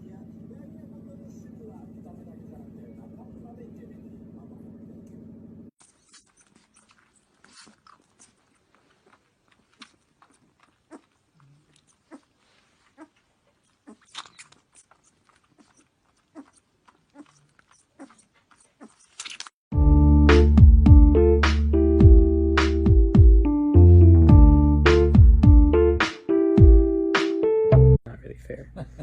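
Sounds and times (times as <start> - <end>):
animal chewing crunches: 5.8 - 19.6.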